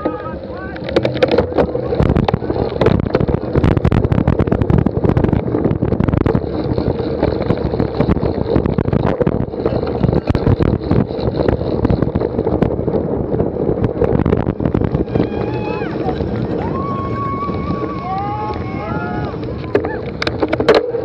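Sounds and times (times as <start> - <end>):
wind buffeting microphone: 0.0 - 21.0
sharp knocks and rattles: 0.8 - 15.1, 19.4 - 21.0.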